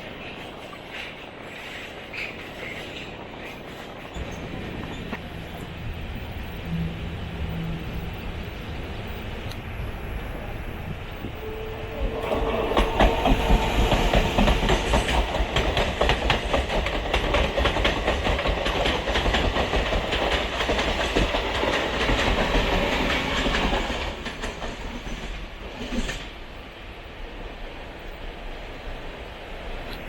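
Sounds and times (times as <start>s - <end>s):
train wheels clattering on track: 0.0s - 5.8s, 11.9s - 26.7s.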